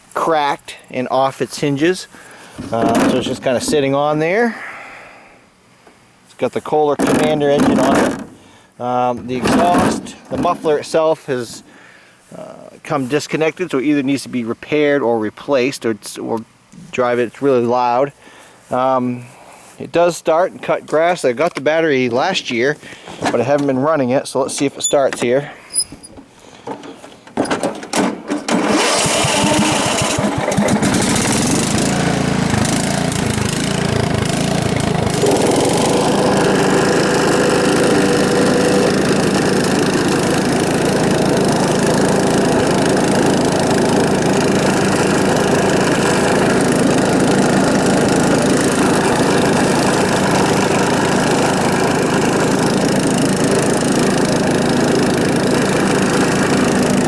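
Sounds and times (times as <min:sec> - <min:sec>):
loud riding mower engine running: 0:28.4 - 0:57.0.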